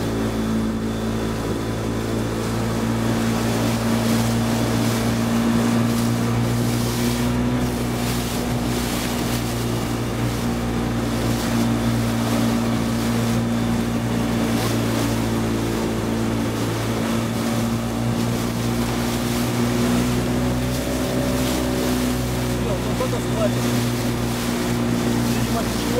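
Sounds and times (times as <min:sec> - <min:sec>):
boat engine humming: 0:00.0 - 0:25.9
water rushing: 0:00.0 - 0:25.9.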